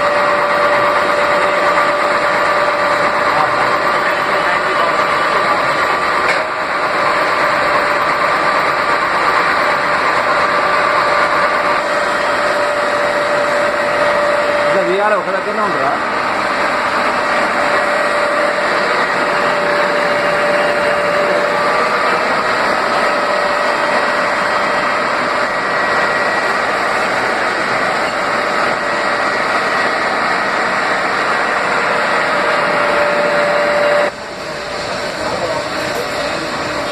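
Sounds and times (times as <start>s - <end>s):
machine whine: 0.0s - 36.9s
welding machine running: 0.0s - 36.9s.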